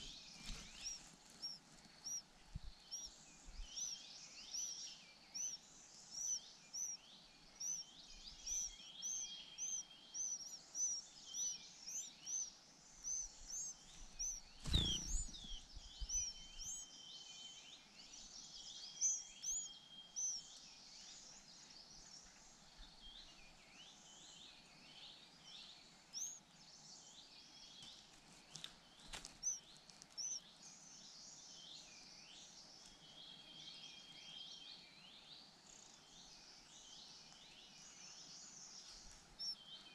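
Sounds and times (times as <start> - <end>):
nestlings chirping: 0.0 - 16.9, 18.9 - 21.4, 26.1 - 26.4, 27.9 - 30.6, 38.7 - 39.8
birds calling faintly: 0.0 - 39.9.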